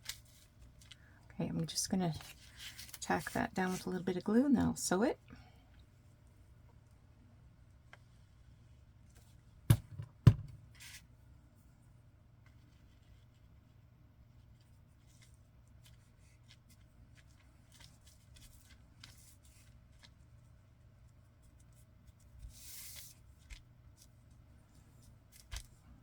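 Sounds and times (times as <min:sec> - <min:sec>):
paper and card rustling: 0:02.0 - 0:04.0, 0:14.6 - 0:20.3, 0:21.4 - 0:24.2, 0:24.8 - 0:25.8.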